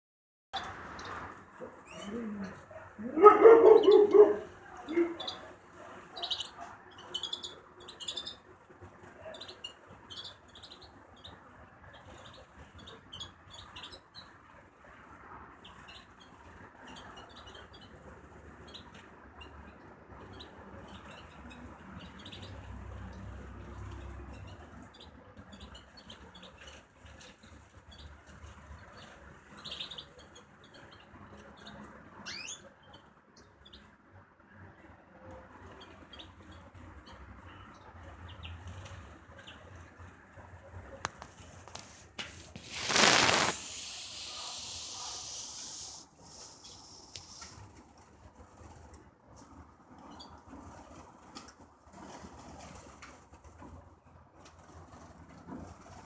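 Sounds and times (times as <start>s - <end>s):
bird chirping: 3.3s - 5.5s, 6.2s - 8.4s
small bird chirping: 6.2s - 8.4s, 42.6s - 47.6s.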